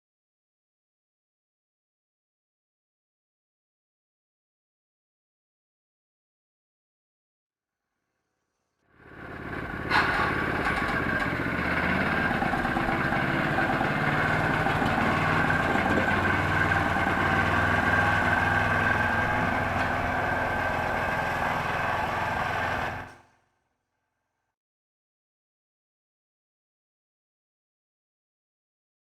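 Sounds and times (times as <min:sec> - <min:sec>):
tractor engine running: 0:09.0 - 0:23.3.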